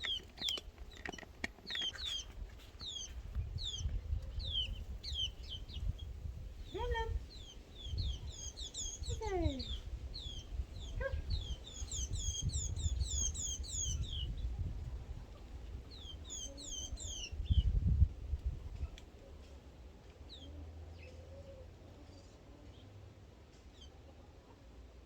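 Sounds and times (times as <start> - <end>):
small bird chirping: 0.0 - 14.7, 15.9 - 18.0.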